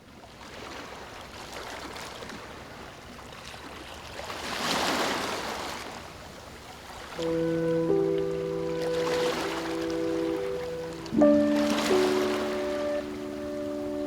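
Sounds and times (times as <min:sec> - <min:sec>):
ocean surf washing in: 0:07.2 - 0:14.0
wave breaking: 0:07.2 - 0:14.0.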